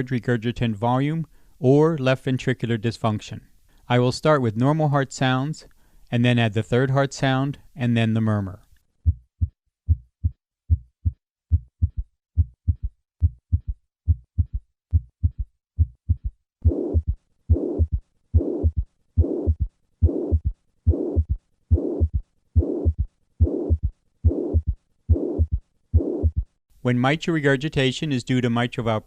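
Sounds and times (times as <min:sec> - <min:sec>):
heart murmur: 0:09.0 - 0:26.5
heartbeat: 0:09.0 - 0:26.6.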